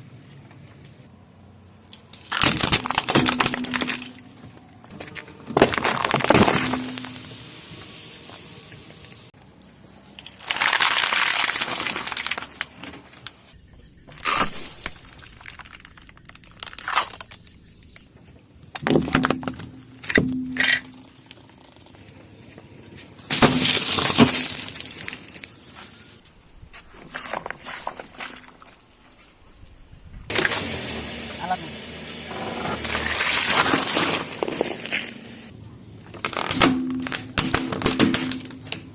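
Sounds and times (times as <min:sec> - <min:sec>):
car tyres crushing objects: 0:01.8 - 0:07.5, 0:09.4 - 0:29.2, 0:30.2 - 0:38.9.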